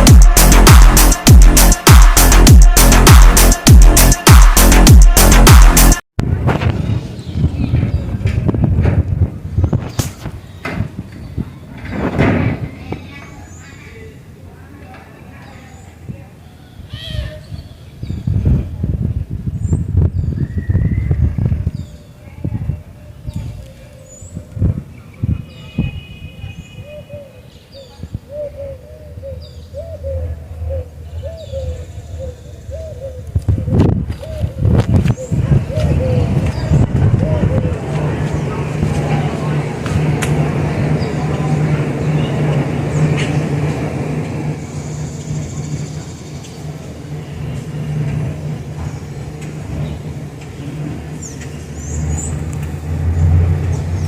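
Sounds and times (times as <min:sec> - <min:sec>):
dove cooing: 0:28.3 - 0:38.0
low rumble: 0:33.4 - 0:54.0.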